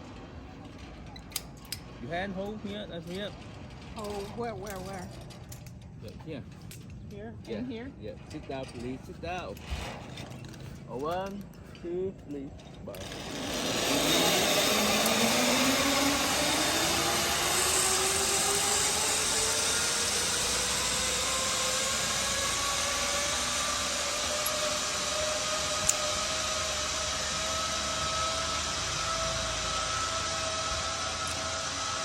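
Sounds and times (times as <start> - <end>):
zipline pulleys whining on cable: 8.5 - 11.5, 12.4 - 32.0.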